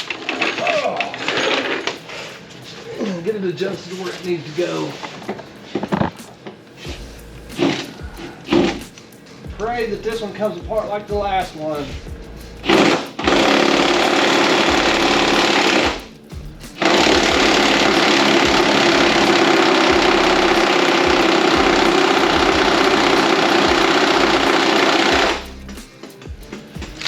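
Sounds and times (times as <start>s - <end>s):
impact wrench hammering on bolt: 12.7s - 16.0s, 16.8s - 25.4s.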